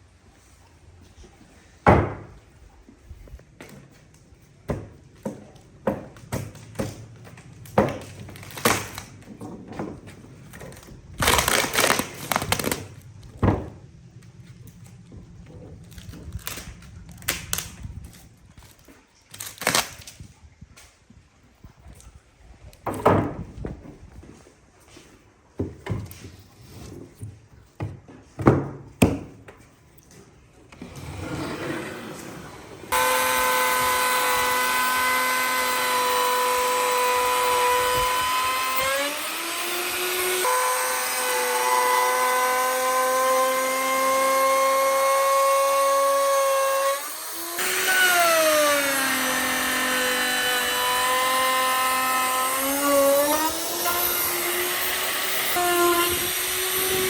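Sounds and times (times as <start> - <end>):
electric power tool running: 30.8 - 57.0.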